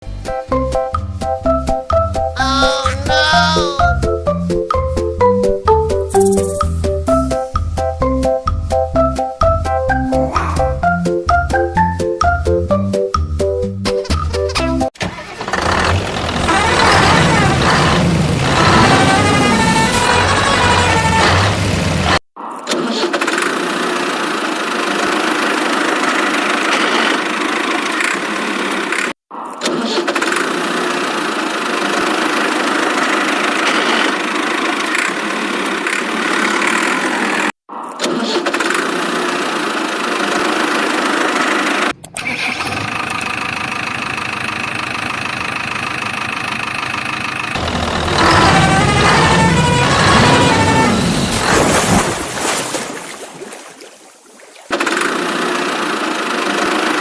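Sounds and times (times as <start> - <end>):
engine starting and running: 14.4 - 52.6, 54.7 - 57.0.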